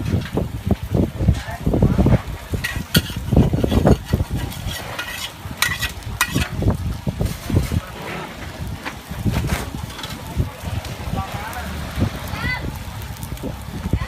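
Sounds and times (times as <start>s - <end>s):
food sizzling: 0.0s - 14.0s
metal utensil scraping frying pan: 2.2s - 8.7s.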